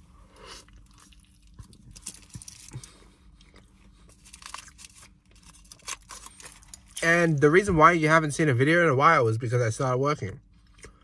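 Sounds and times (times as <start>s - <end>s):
faint low hum: 0.0s - 11.0s
person chewing: 0.3s - 7.0s.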